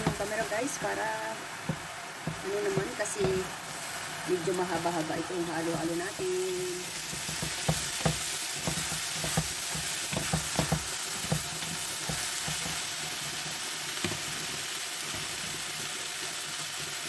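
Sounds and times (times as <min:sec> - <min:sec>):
wooden spatula knocking against pan: 0:00.0 - 0:00.4, 0:01.6 - 0:03.5, 0:07.0 - 0:12.8
eggplant sizzling in hot oil: 0:00.0 - 0:17.0.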